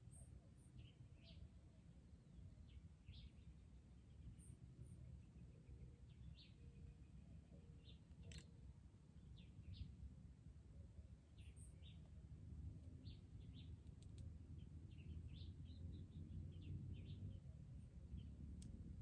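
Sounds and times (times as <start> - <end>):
faint bird chirps: 0.0 - 1.7.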